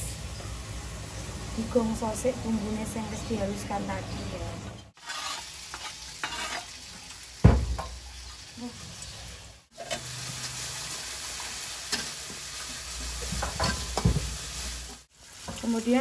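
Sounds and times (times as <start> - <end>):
metal spatula scraping wok: 5.0 - 6.9
shallots sizzling in hot oil: 5.0 - 16.0.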